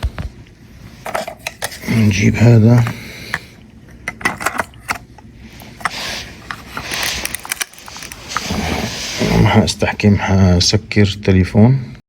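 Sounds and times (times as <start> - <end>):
electrical part clicking: 4.1 - 8.5
rustling scrape: 4.3 - 9.6.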